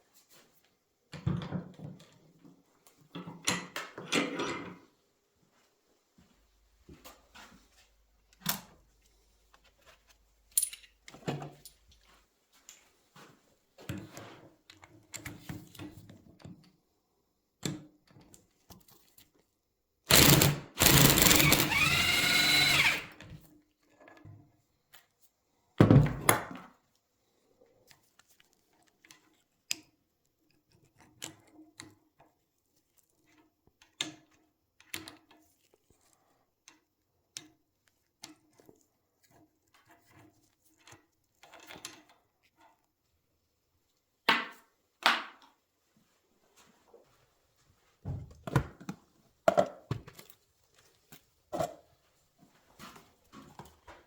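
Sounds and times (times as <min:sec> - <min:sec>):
hand tools clicking on metal: 0:20.1 - 0:23.1
power tool whining: 0:20.1 - 0:23.2.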